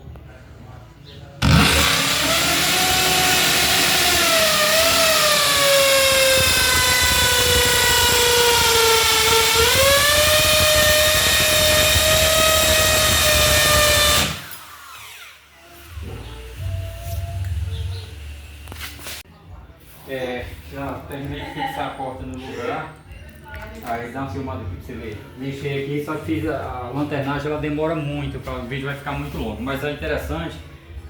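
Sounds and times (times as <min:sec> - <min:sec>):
power tool motor whine: 0:01.4 - 0:17.3.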